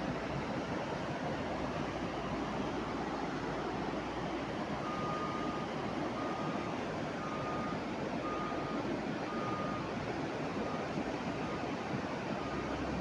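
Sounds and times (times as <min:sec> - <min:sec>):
reversing alarm beeping: 0:04.8 - 0:10.0.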